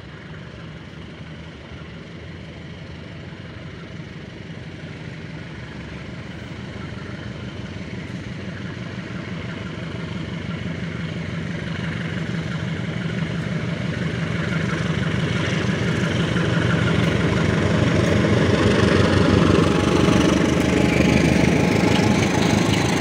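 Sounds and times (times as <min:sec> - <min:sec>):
locomotive engine hum: 0:00.0 - 0:23.0
train wheels clattering on rails: 0:02.4 - 0:23.0.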